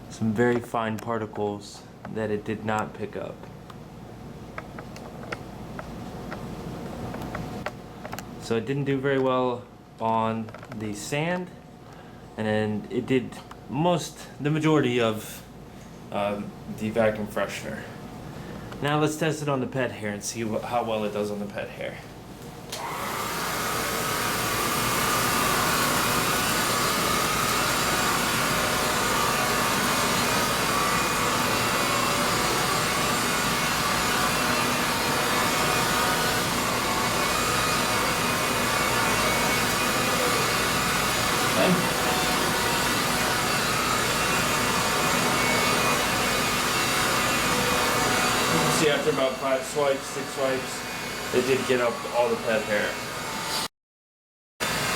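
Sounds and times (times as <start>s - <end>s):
vacuum cleaner whining: 22.7s - 53.7s, 54.6s - 54.9s.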